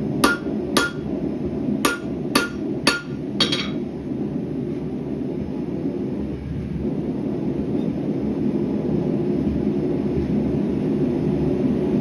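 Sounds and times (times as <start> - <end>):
gas forge burner roar: 0.0 - 12.0
hammer striking steel on anvil: 0.2 - 1.2, 1.8 - 3.9.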